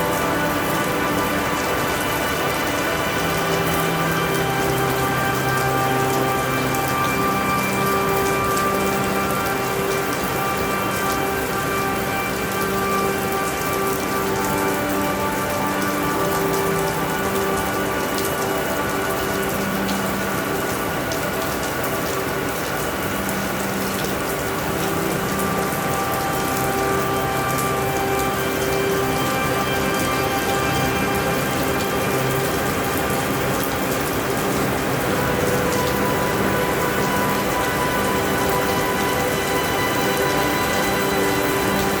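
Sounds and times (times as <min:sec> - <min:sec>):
soft ambient music: 0:00.0 - 0:42.0
steady rainfall: 0:00.0 - 0:42.0.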